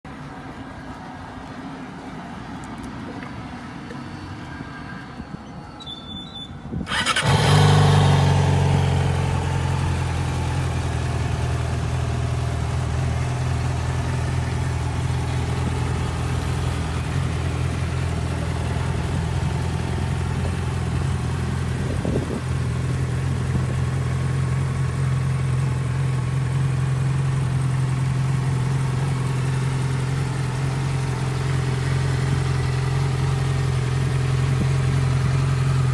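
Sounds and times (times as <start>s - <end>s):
motorcycle engine starting and idling: 6.8s - 35.9s.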